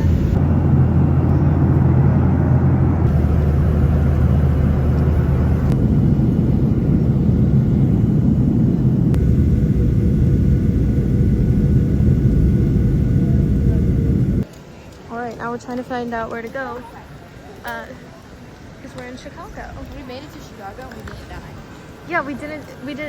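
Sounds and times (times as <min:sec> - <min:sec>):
airliner cabin rumble: 0:00.0 - 0:14.4.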